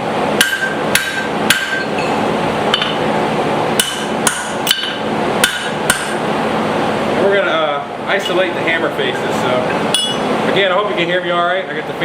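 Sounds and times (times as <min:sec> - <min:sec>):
shop fan rushing: 0:00.0 - 0:12.0
hammer striking steel anvil: 0:00.4 - 0:03.0, 0:03.8 - 0:06.2, 0:09.9 - 0:10.3.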